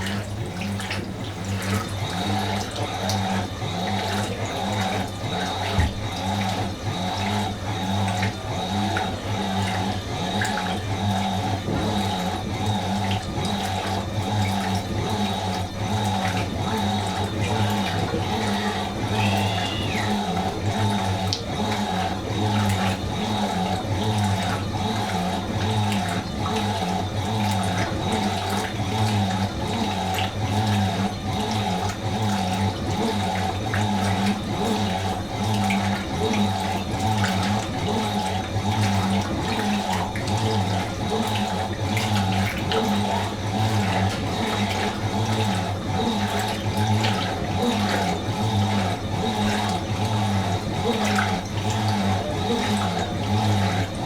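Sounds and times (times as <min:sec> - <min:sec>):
washing machine motor hum: 0:00.0 - 0:54.0
water rushing: 0:14.6 - 0:22.8.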